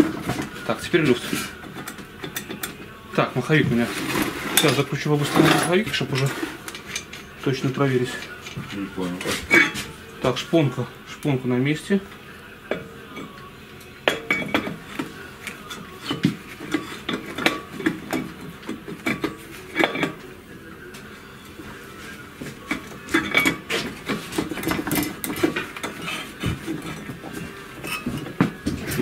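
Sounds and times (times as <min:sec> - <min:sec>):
metal tools clinking and knocking: 0:04.2 - 0:09.9, 0:12.7 - 0:15.0, 0:15.6 - 0:20.2, 0:22.7 - 0:29.0.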